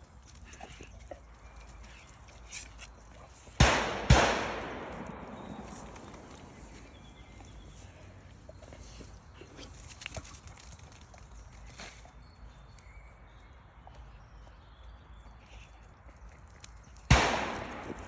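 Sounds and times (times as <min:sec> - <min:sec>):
loud sharp bang with echo: 0:03.6 - 0:06.4, 0:17.1 - 0:18.0.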